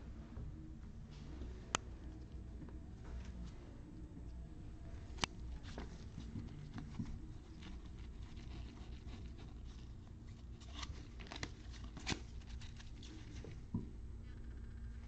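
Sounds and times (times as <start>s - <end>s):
trading cards clicking and rustling: 5.1s - 13.6s.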